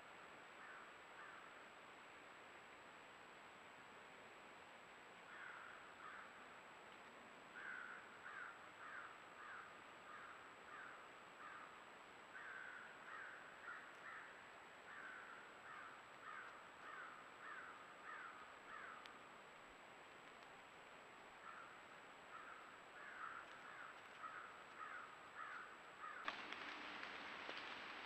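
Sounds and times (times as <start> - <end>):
bird calling faintly: 12.4 - 19.2, 21.4 - 28.0.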